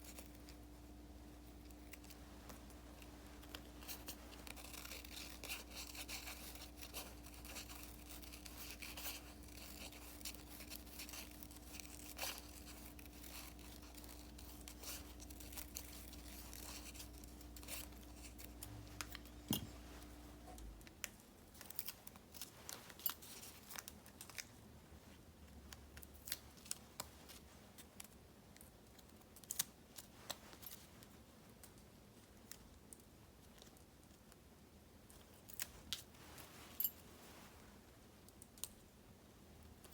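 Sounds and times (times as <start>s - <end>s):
faint steady hum: 0.0s - 39.9s
paper rustling and tearing: 3.4s - 19.2s.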